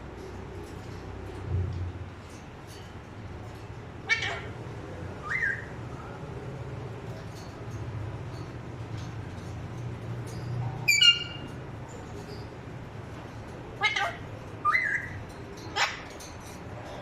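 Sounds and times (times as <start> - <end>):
parrot shrill calls: 4.0 - 4.6, 5.2 - 5.7, 10.9 - 11.5, 13.8 - 16.1.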